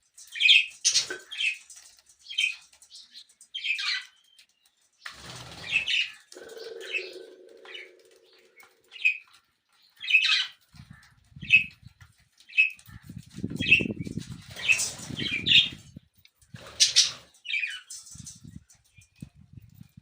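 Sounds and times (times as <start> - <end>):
wings flapping: 5.0 - 9.4, 12.8 - 15.9
parrots chirping: 5.5 - 9.3.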